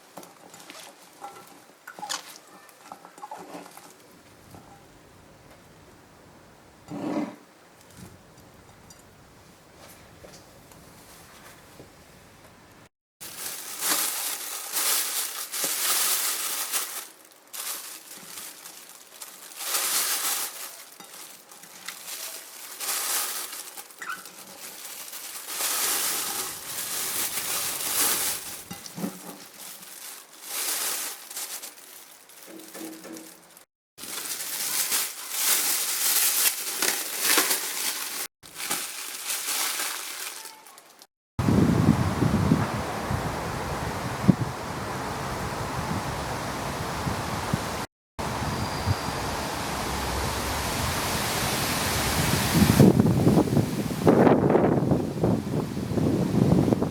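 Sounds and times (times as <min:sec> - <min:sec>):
crinkling rustling handling noise: 0:00.0 - 0:04.6, 0:13.2 - 0:41.1.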